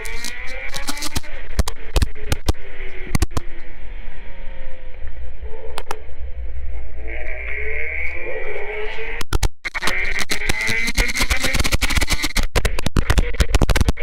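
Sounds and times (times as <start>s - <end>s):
sharp clicks or knocks: 0.0s - 3.5s, 9.2s - 14.0s
motorcycle engine rumbling: 0.0s - 14.0s.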